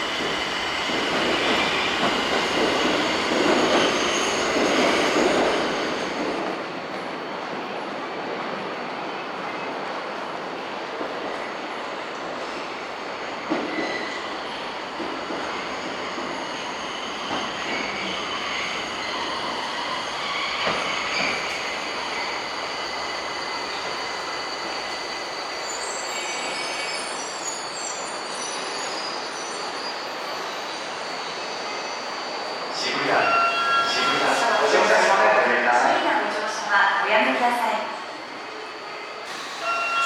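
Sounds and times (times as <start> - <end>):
subway train rumbling on track: 0.0 - 40.0.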